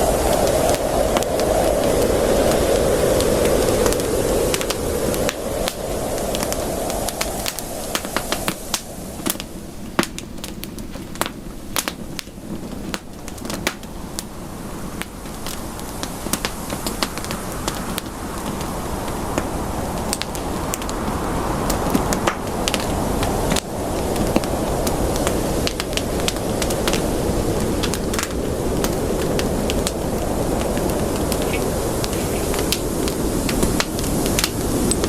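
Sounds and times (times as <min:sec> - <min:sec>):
rushing hiss of flames: 0:00.0 - 0:35.0
campfire pops and snaps: 0:21.9 - 0:27.0, 0:27.6 - 0:35.0.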